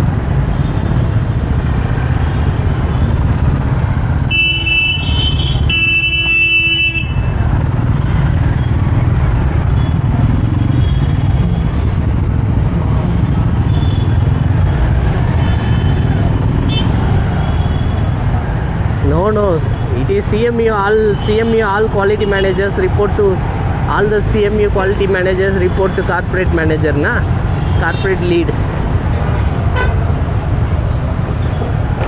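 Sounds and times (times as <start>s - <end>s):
vehicle horn honking: 4.3s - 7.4s, 29.7s - 30.0s.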